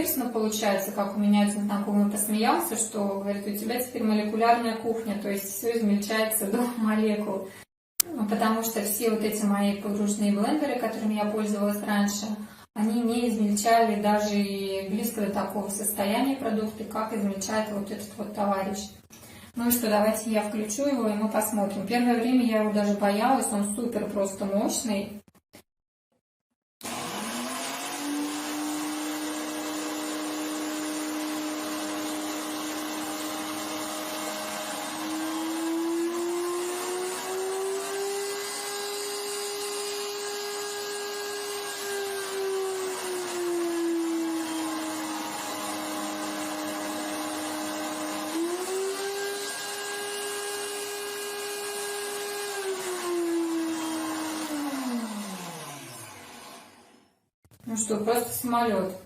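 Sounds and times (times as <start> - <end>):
blender motor whining: 26.8 - 57.3.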